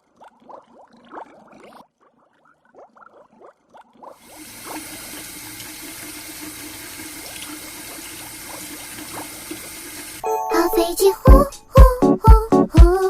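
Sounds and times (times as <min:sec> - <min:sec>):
steady rush like running water: 0:04.2 - 0:10.2.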